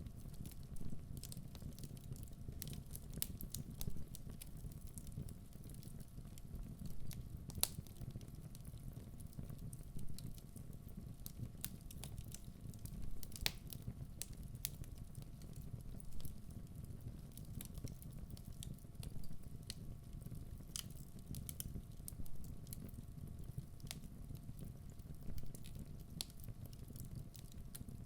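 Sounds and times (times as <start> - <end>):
burning logs crackling and popping: 0.0 - 28.0.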